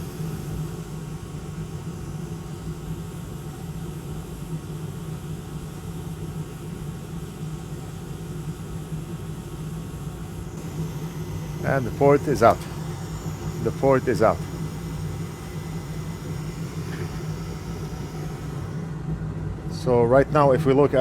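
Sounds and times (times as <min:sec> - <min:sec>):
repair bench equipment whirring: 0:00.0 - 0:02.7, 0:10.2 - 0:19.8.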